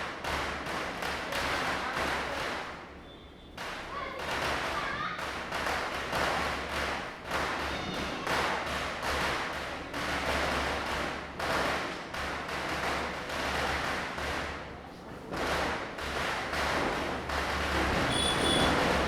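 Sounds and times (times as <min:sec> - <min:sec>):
firecrackers bursting: 0:08.4 - 0:19.0.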